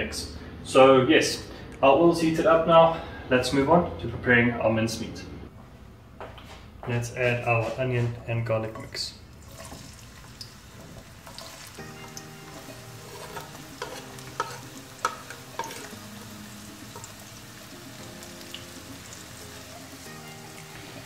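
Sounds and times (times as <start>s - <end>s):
onion and garlic sizzling in oil: 9.3s - 21.0s
soft background music: 10.6s - 21.0s
knife scraping and tapping: 13.0s - 16.0s.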